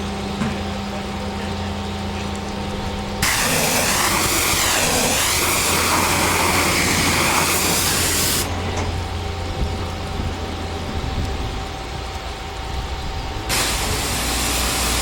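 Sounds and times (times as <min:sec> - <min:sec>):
pump and engine humming: 0:00.0 - 0:15.0
pressure washer water jet spraying: 0:03.2 - 0:08.5, 0:13.5 - 0:15.0.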